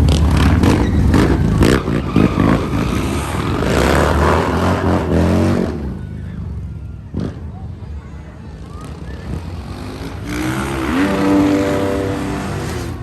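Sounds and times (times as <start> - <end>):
motocross bike engine revving: 9.7 - 13.0.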